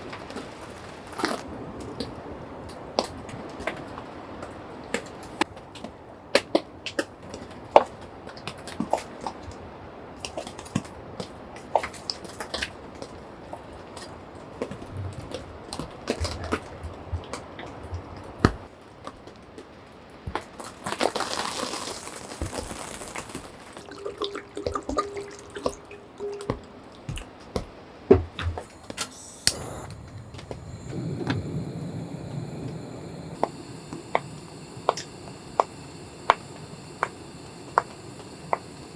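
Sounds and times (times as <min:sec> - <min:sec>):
water running or pouring: 0:20.9 - 0:26.7
water drips and taps: 0:23.8 - 0:28.9.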